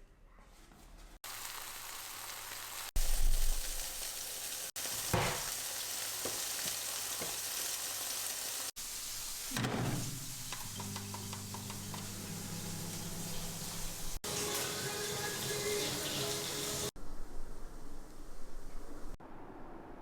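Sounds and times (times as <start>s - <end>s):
sizzling hiss: 1.2s - 17.0s.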